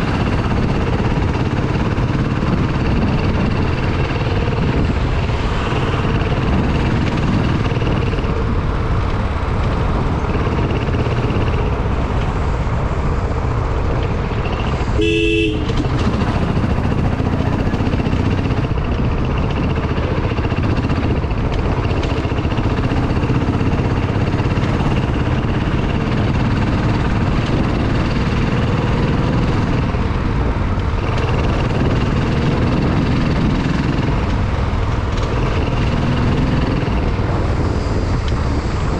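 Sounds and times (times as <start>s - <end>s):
motorbike engine running: 0.0s - 38.9s
wind rumble on microphone: 0.0s - 38.9s
horn beep: 14.5s - 16.0s.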